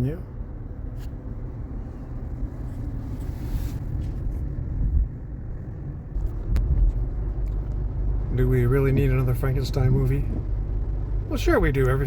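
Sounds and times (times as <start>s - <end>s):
road and tyre rumble: 0.0s - 12.0s.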